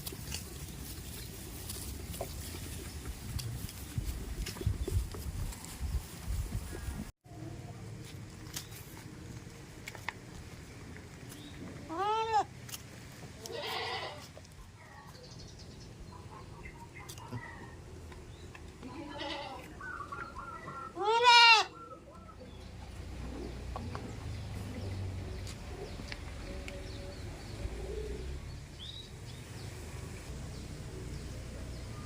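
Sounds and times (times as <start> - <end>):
goats bleating: 11.9 - 12.5, 13.4 - 14.3, 18.8 - 19.7, 20.8 - 21.8.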